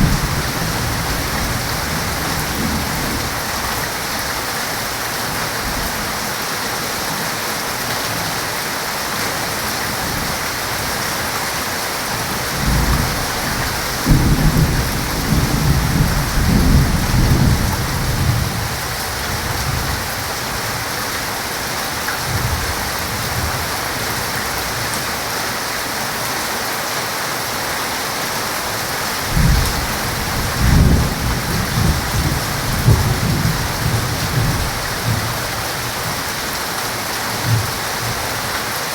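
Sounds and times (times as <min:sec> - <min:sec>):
thunder rumbling: 0:00.0 - 0:03.7, 0:12.2 - 0:20.1, 0:29.3 - 0:36.3
heavy rain falling: 0:00.0 - 0:38.9.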